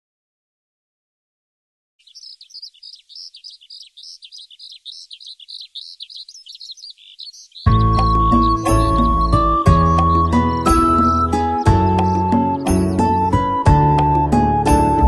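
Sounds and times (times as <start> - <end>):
small birds chirping: 2.0 - 15.0.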